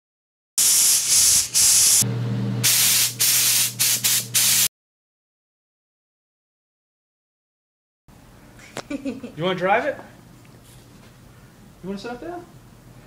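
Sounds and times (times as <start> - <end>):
loud hissing bursts: 0.6 - 2.0, 2.6 - 4.7.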